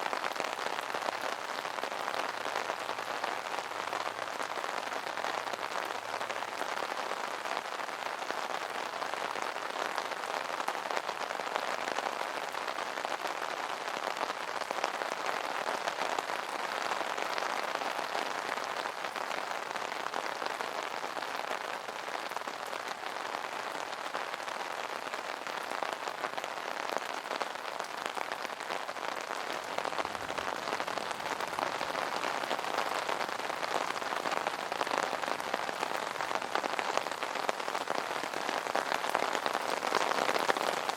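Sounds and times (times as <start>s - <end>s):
rain pattering on umbrella: 0.0s - 40.9s.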